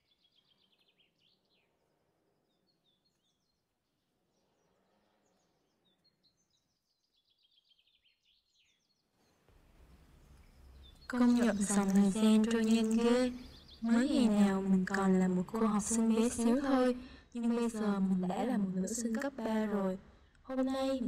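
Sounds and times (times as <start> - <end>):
faint bird chirps and trills: 0.0 - 16.8.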